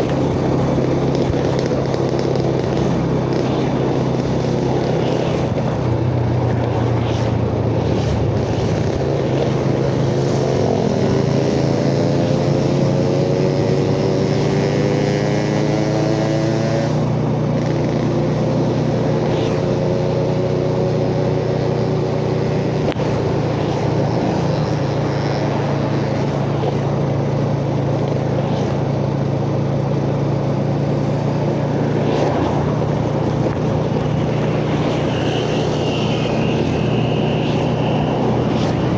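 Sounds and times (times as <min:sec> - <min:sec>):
motorcycle engine running: 0:00.0 - 0:38.9
road and wind rush: 0:00.0 - 0:38.9.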